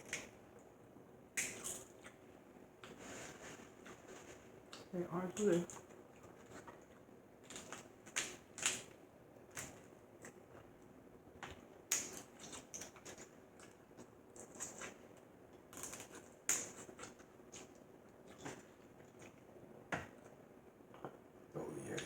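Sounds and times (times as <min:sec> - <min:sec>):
crab shells cracking: 0:00.0 - 0:00.4, 0:01.3 - 0:02.1, 0:07.4 - 0:10.4, 0:11.4 - 0:15.0, 0:15.6 - 0:19.3.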